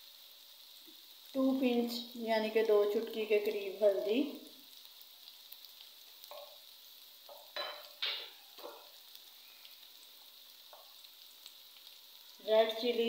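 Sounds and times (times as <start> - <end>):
vegetables sizzling in a wok: 0.0 - 13.0
spatula scraping and knocking pan: 7.3 - 8.9.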